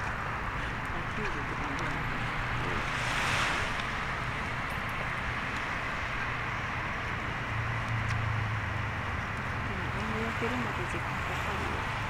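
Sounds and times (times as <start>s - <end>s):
wind: 0.0s - 12.0s
surf rushing: 1.5s - 5.3s.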